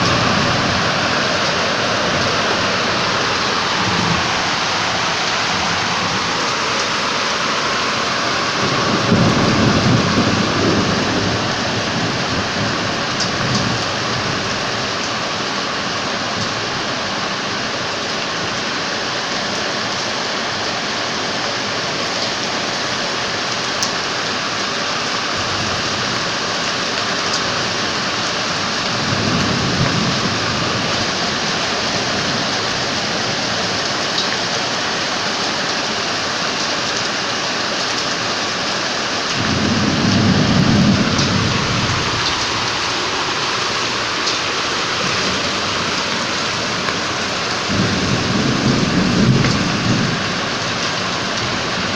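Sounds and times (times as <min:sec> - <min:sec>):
thunder rolling: 0:00.0 - 0:14.6, 0:39.4 - 0:51.9
heavy rain pouring: 0:00.0 - 0:51.9.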